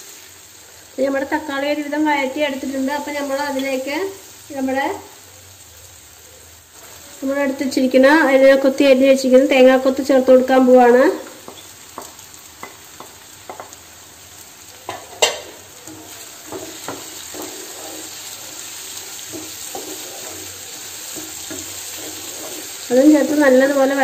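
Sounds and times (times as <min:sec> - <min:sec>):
food sizzling in a pan: 0:00.0 - 0:24.0
wooden spatula scraping a pan: 0:14.8 - 0:24.0.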